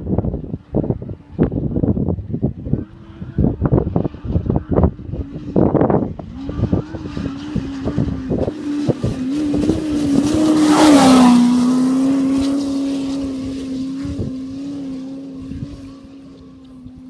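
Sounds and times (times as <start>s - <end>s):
wind buffeting microphone: 0.0s - 17.0s
vehicle engine passing by: 0.9s - 17.0s.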